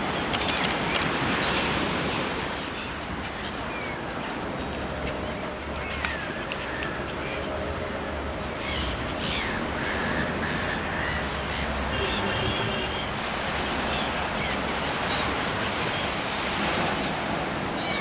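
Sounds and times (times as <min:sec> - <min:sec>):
ocean surf washing: 0:00.0 - 0:18.0.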